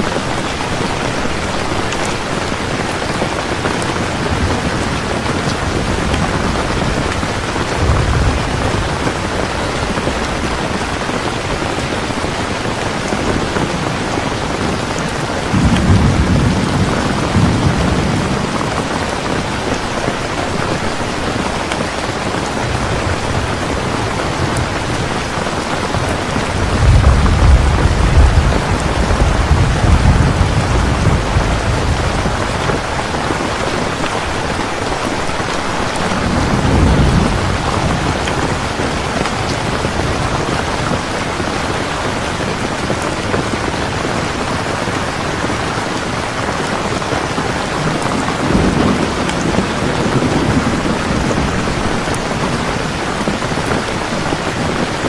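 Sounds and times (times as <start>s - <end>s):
heavy rain: 0.0s - 55.0s
thunder rumbling: 0.0s - 55.0s.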